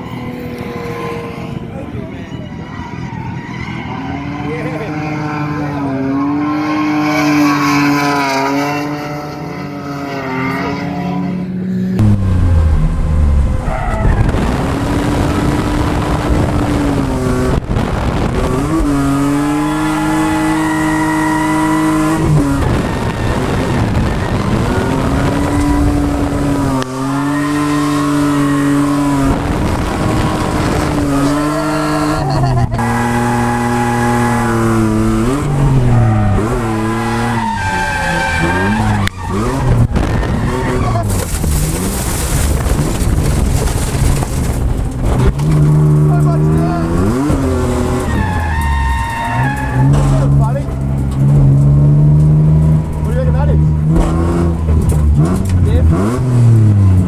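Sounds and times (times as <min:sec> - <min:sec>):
car engine revving high: 0:00.0 - 0:02.6, 0:03.2 - 0:57.0
tyre squeal: 0:00.0 - 0:08.3, 0:32.8 - 0:42.4, 0:46.5 - 0:51.0.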